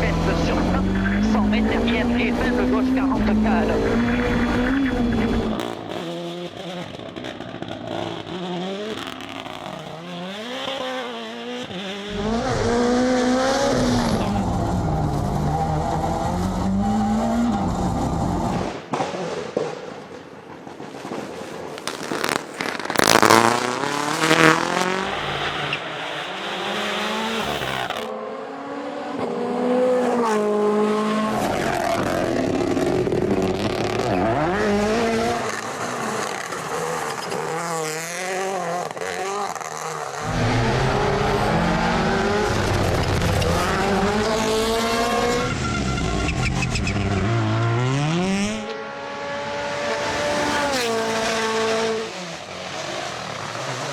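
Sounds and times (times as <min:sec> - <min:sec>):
rally car engines revving: 0:00.0 - 0:53.9
tyre noise on road: 0:03.8 - 0:28.2, 0:29.1 - 0:48.7.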